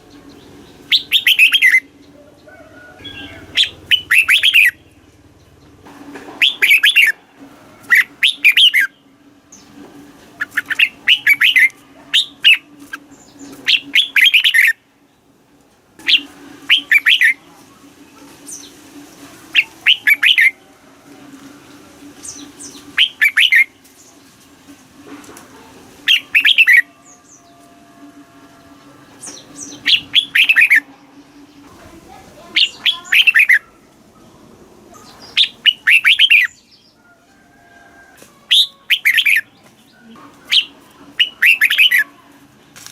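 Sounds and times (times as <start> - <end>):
bird singing warbling phrases: 0.0 - 5.6, 6.4 - 7.2, 7.8 - 15.3, 16.0 - 17.5, 19.5 - 20.6, 22.2 - 24.1, 26.0 - 27.7, 28.6 - 37.0, 38.5 - 42.3.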